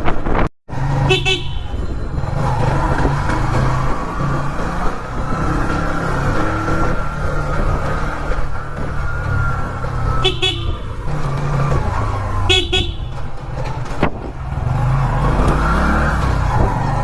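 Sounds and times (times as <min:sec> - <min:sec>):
motorcycle engine: 0:00.0 - 0:17.0
road noise: 0:00.0 - 0:17.0
horn beeps: 0:01.0 - 0:02.1, 0:10.2 - 0:10.9, 0:12.4 - 0:13.3.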